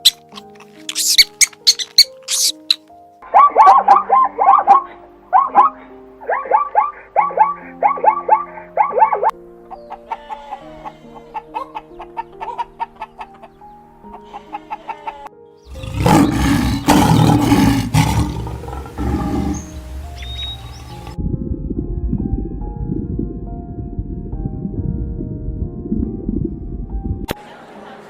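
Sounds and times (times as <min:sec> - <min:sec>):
background music with plucked notes: 0:00.0 - 0:27.4
rough animal roar: 0:15.7 - 0:21.1.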